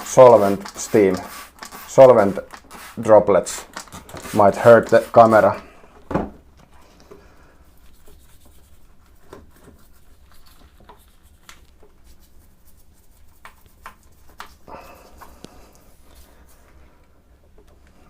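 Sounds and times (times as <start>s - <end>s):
faint rubbing and scratching: 6.7s - 17.0s.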